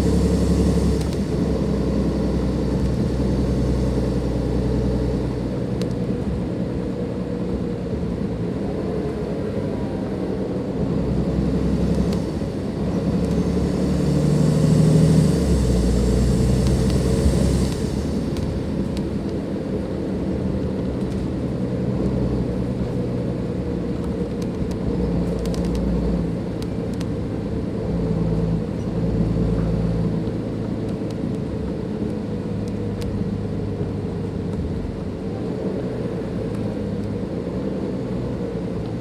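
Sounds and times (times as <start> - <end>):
turbo whine: 0.0 - 6.6, 11.3 - 20.1
bus diesel engine running: 0.0 - 39.0.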